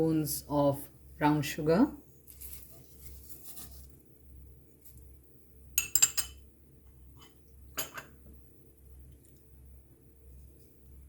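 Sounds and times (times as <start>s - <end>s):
metal spoon clinking on pan: 5.8s - 6.4s.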